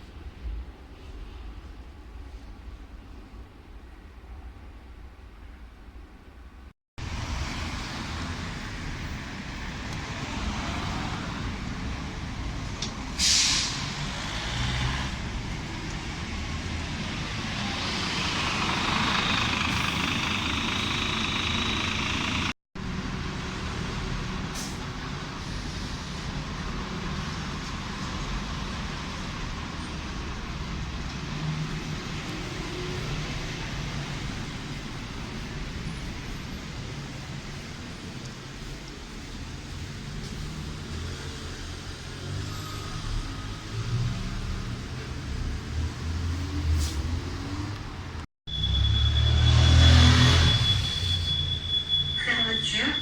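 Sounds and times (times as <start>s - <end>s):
train rumbling: 7.0s - 53.0s
air hissing: 13.2s - 14.0s.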